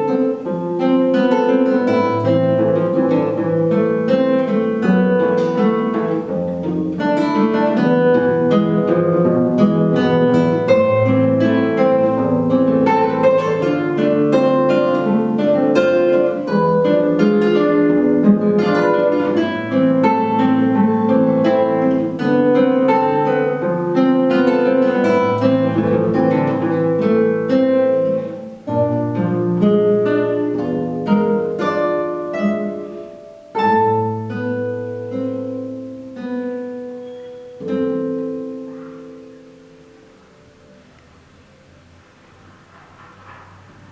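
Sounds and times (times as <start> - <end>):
two guitars playing a duet: 0.0 - 43.0.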